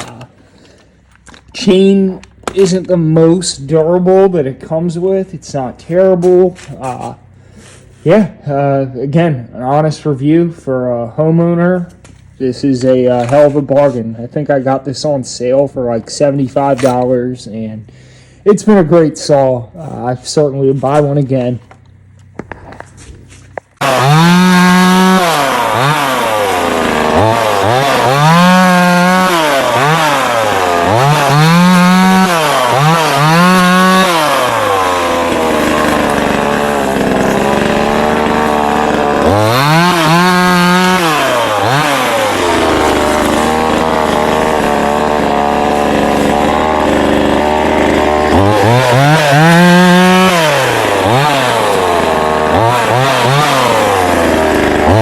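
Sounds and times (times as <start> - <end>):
chainsaw revving and idling: 0.0 - 10.4, 11.0 - 17.7, 18.4 - 55.0.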